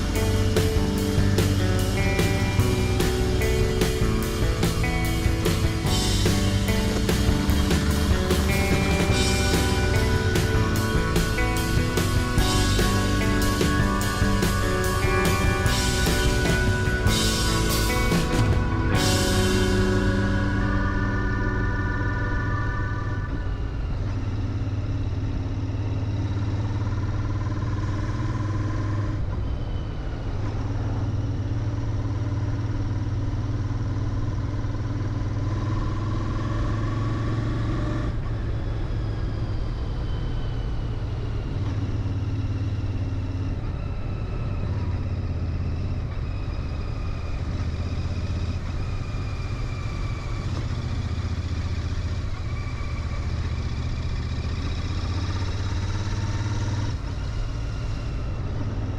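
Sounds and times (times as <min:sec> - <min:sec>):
motorcycle engine droning: 0:00.0 - 0:58.9.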